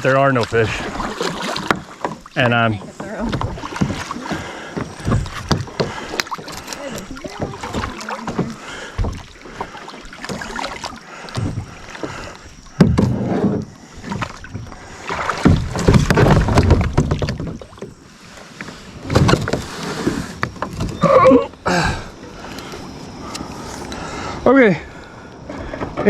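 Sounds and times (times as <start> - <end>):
paddle splashing water: 0.0 - 26.0
knocks on kayak hull: 12.8 - 13.6, 15.3 - 17.6.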